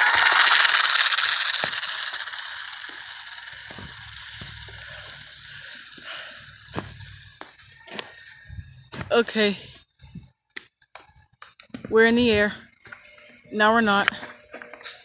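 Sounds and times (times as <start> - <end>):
model plane motor whirring: 0.0 - 7.5.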